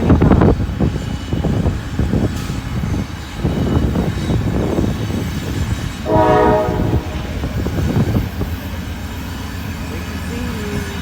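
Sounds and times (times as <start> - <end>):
wind and train rumble: 0.0 - 11.0
train horn blast: 6.0 - 7.8.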